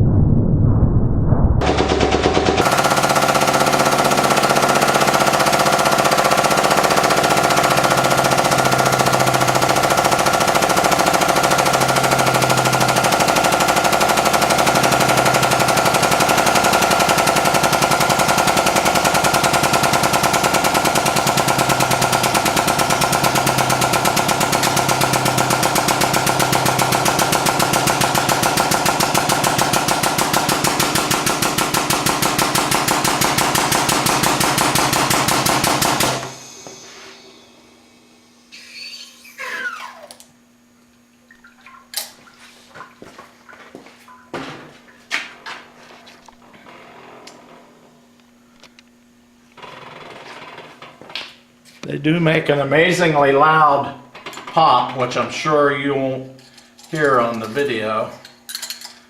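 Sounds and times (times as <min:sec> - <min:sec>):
hydraulic pump chattering: 0:01.6 - 0:37.3, 0:38.5 - 0:40.4.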